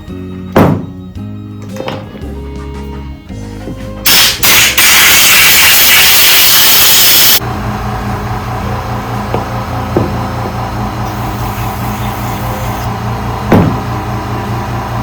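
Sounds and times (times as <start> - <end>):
compressed air blow gun blasting: 4.1 - 7.4, 11.0 - 13.0.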